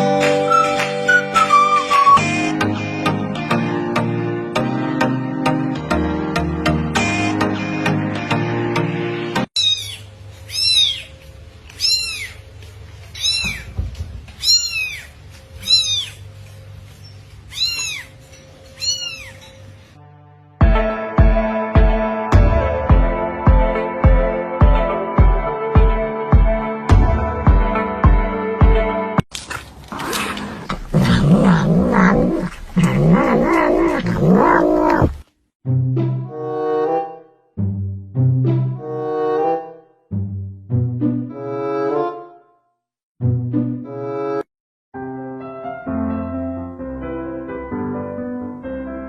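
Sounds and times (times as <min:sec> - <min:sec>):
cat meowing: 0:09.6 - 0:12.4, 0:13.1 - 0:13.8, 0:14.4 - 0:16.3, 0:17.5 - 0:18.2, 0:18.8 - 0:19.6, 0:30.9 - 0:35.2.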